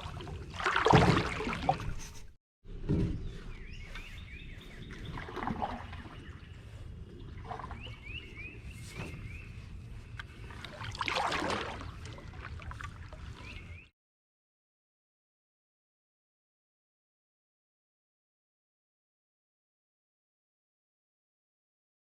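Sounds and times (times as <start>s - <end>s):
canoe paddle strokes in water: 0.0s - 13.9s
small bird chirping: 3.2s - 5.2s.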